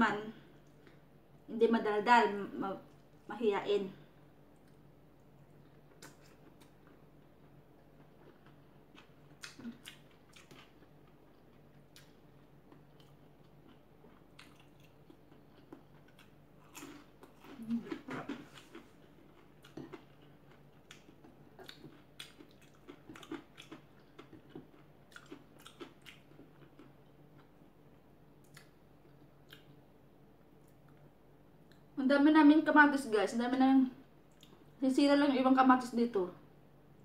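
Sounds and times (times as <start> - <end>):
person chewing food: 4.4 - 29.8, 34.3 - 34.8.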